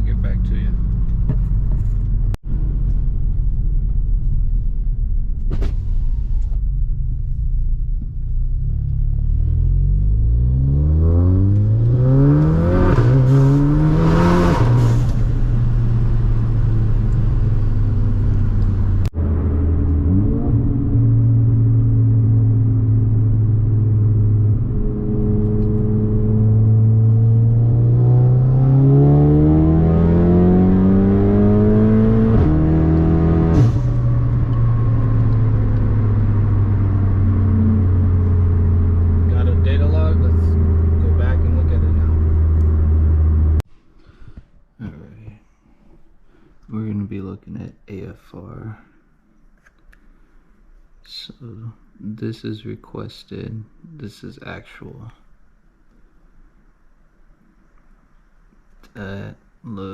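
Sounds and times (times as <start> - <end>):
car engine accelerating: 5.6 - 43.6.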